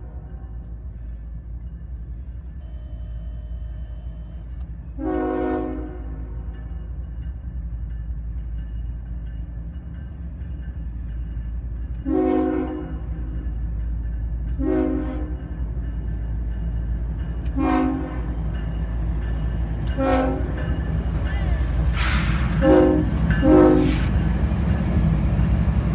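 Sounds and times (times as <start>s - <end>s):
train rumble: 0.0s - 25.9s
locomotive air horn blasts: 5.0s - 6.3s, 12.0s - 13.0s, 14.6s - 15.4s, 17.6s - 18.3s, 20.0s - 20.6s, 21.9s - 24.2s.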